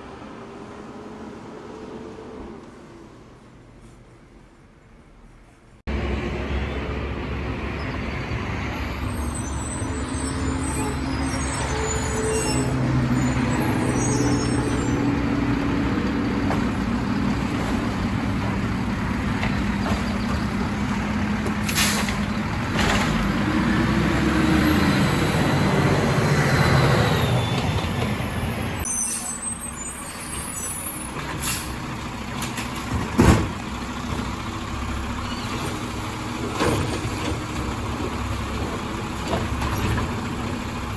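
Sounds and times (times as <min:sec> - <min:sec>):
garbage truck engine running: 0:12.8 - 0:24.3, 0:31.3 - 0:40.9.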